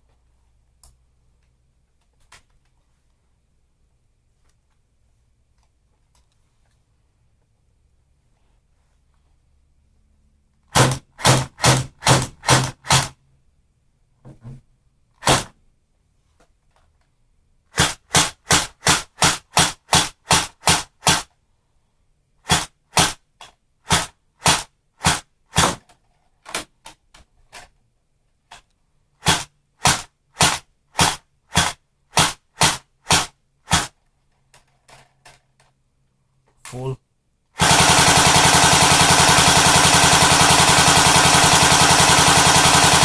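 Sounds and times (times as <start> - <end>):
airsoft gun firing shots: 10.7 - 13.1, 15.2 - 15.5, 17.8 - 21.2, 23.9 - 25.8, 29.2 - 33.9, 37.6 - 43.0.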